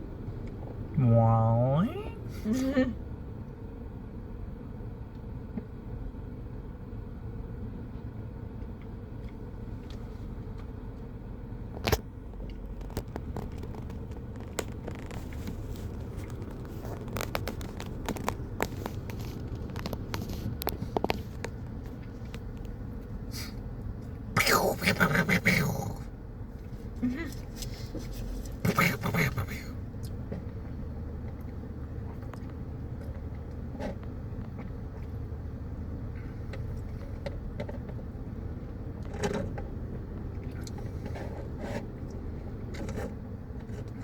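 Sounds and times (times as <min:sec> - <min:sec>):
low rumble of traffic: 0:00.0 - 0:44.0
sharp clicks and pops: 0:11.8 - 0:22.8.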